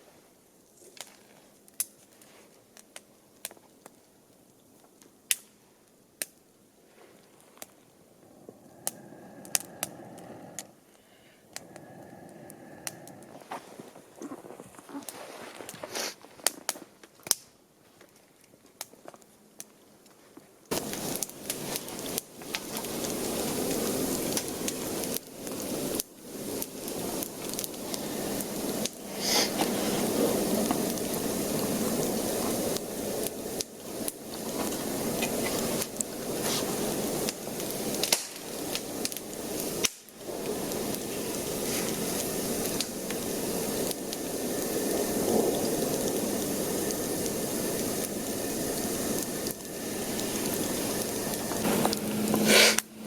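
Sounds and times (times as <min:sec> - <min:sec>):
food sizzling over campfire: 0:00.0 - 0:17.4, 0:20.7 - 0:53.0
faint clicks: 0:08.5 - 0:13.4.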